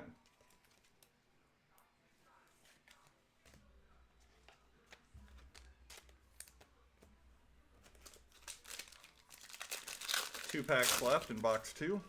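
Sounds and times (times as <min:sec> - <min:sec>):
trading cards rustling: 0:07.8 - 0:12.0.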